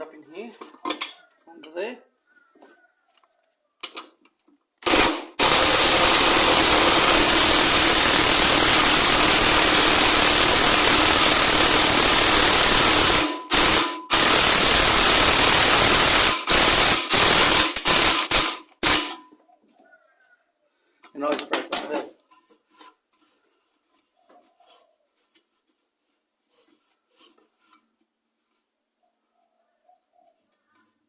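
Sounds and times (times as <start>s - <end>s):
compressed-air tool hissing: 4.9s - 19.1s.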